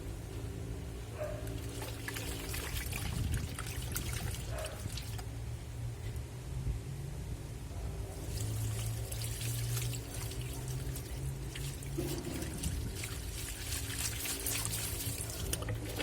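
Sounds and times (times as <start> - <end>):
steady low hum: 0.0 - 16.0
water sloshing in washing machine: 1.3 - 5.3, 8.1 - 16.0.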